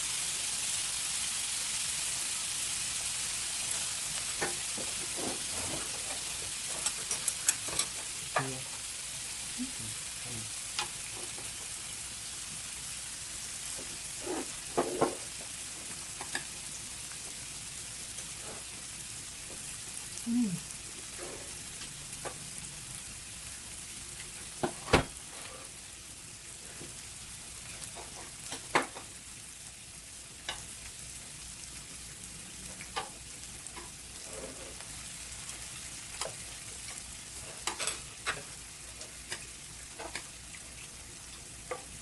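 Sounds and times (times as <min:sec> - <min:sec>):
meat sizzling on grill pan: 0:00.0 - 0:42.0
utensils clicking against pan: 0:05.8 - 0:08.5, 0:36.1 - 0:40.4.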